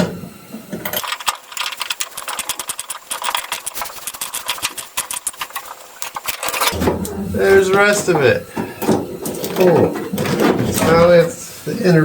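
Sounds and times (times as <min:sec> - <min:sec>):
ratchet wrench clicking: 0:00.9 - 0:06.8.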